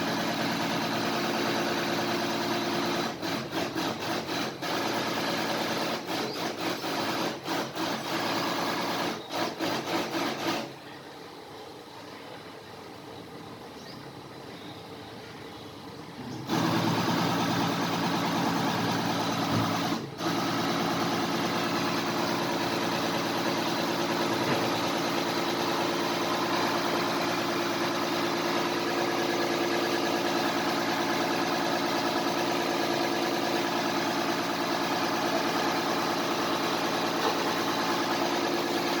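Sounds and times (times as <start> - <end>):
plunger pump humming: 16.5 - 39.0.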